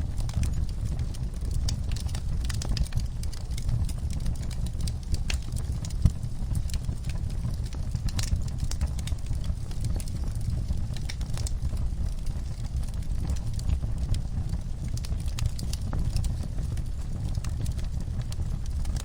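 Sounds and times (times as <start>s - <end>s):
fire crackling and popping: 0.0s - 19.0s
low rumble of flames: 0.0s - 19.0s.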